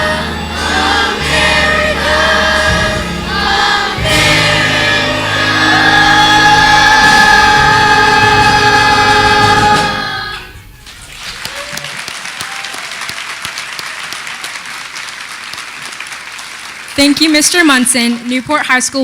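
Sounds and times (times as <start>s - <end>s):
choir singing: 0.0s - 10.8s
band accompaniment: 0.0s - 11.7s.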